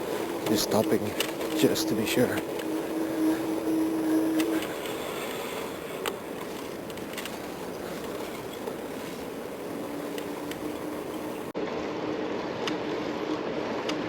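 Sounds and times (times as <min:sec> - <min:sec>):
city traffic: 0:00.0 - 0:11.6
low steady hum: 0:00.0 - 0:14.0.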